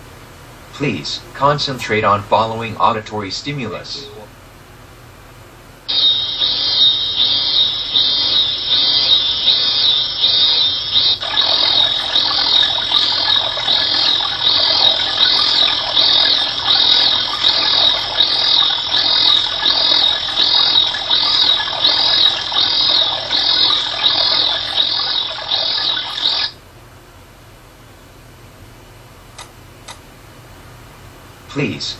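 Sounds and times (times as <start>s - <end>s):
high chirps: 5.9s - 26.6s.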